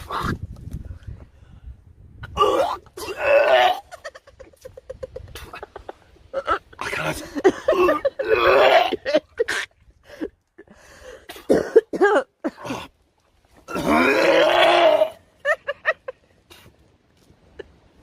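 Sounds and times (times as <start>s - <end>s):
man gagging and retching: 2.2s - 4.2s, 6.3s - 10.0s, 11.3s - 13.0s, 13.6s - 15.2s.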